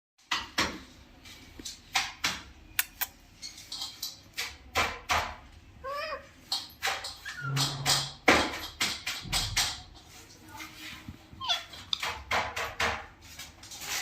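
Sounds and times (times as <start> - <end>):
sharp clicks and taps: 1.9 - 3.2
parrot chirping: 11.4 - 12.2.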